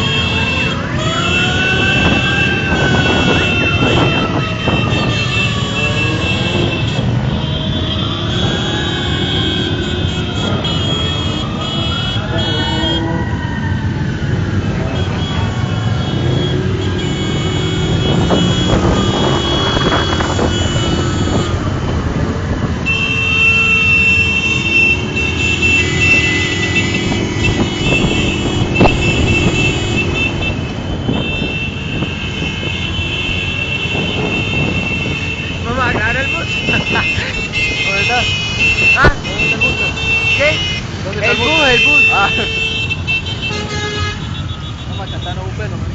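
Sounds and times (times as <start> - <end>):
horns in held high tones: 0.0 - 13.2, 14.9 - 21.6
siren-like wails: 0.0 - 22.9
motorcycle engines and road noise: 0.0 - 45.9.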